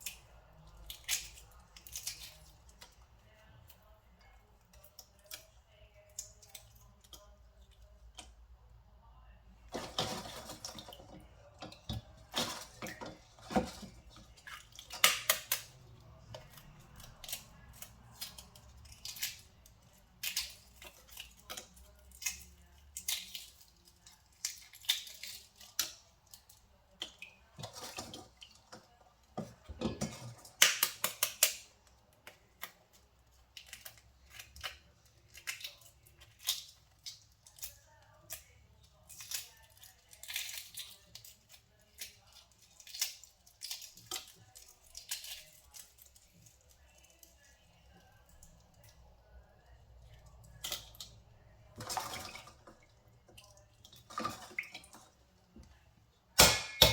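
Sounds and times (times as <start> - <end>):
utensils tapping and scraping: 9.7 - 18.6.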